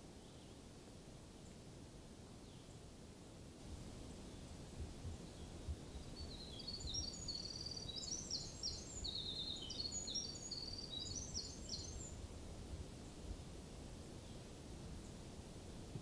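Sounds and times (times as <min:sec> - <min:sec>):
songbird singing trills: 0:05.1 - 0:12.2.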